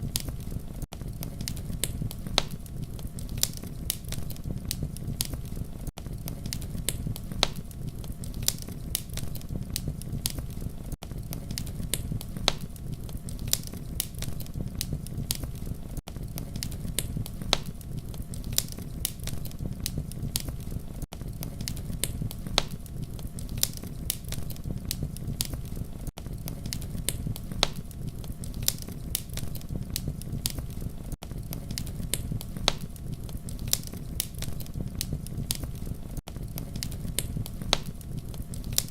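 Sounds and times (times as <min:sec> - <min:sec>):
campfire crackling: 0:00.0 - 0:38.9.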